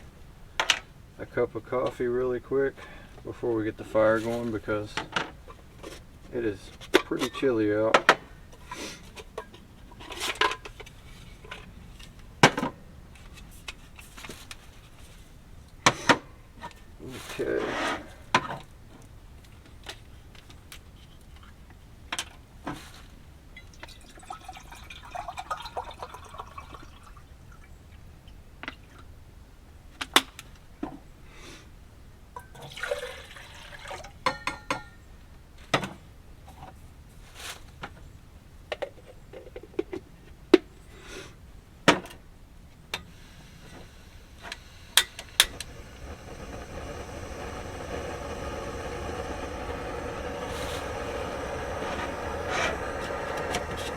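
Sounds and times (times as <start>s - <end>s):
water pouring: 23.6s - 27.7s, 32.4s - 34.2s, 45.0s - 53.9s
steady hum: 42.7s - 53.9s.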